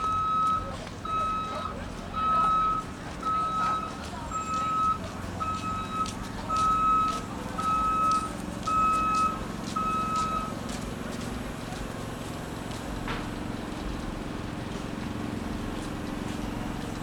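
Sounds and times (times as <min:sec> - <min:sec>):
reversing alarm beeping: 0:00.0 - 0:10.7.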